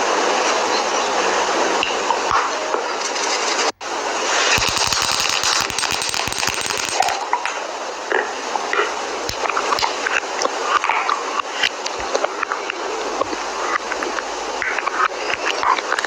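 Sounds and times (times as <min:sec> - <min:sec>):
makeup items crackling: 0:04.6 - 0:07.2
sharp clicks and taps: 0:04.6 - 0:07.2.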